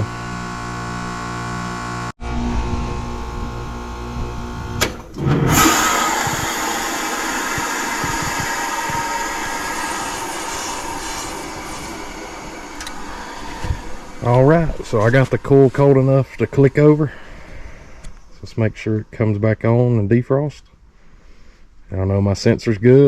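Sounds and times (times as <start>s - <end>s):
heat pump click: 4.8s - 18.2s
refrigerant whoosh and hiss: 5.5s - 18.0s.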